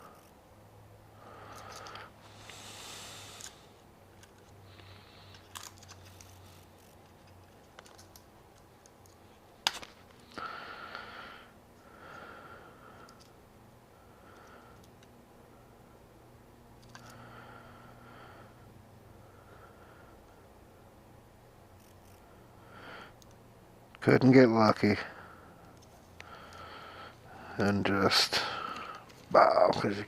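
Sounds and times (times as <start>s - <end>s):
parts clicking and scraping: 1.4s - 2.6s, 3.2s - 10.4s, 13.0s - 13.4s, 14.3s - 15.1s, 16.8s - 17.2s, 28.6s - 30.0s.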